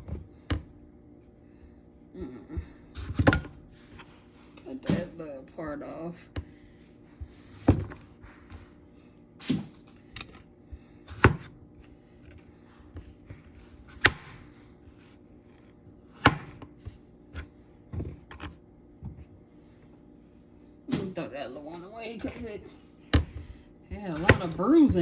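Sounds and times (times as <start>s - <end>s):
knife cutting potatoes: 3.0s - 4.2s, 11.0s - 11.6s, 13.0s - 14.5s, 16.1s - 17.5s, 23.9s - 25.0s.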